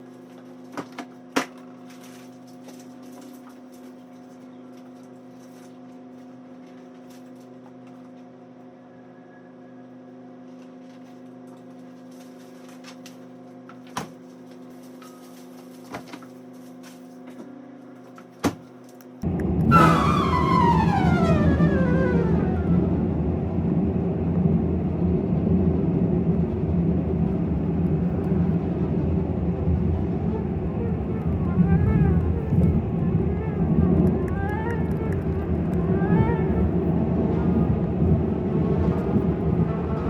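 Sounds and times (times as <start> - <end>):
steady machine hum: 19.2 - 40.0.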